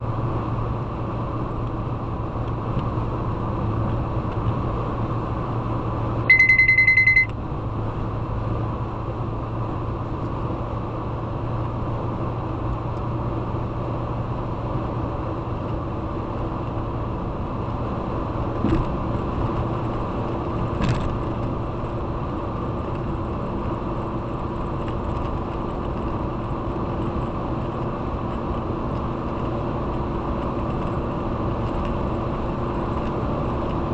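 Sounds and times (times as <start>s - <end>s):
car engine and road noise: 0.0s - 33.9s
loud high beep: 6.3s - 7.3s.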